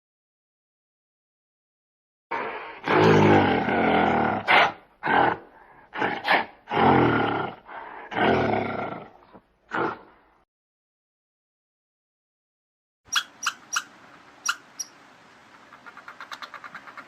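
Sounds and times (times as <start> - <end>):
animal calling: 13.1 - 15.0, 15.6 - 17.0.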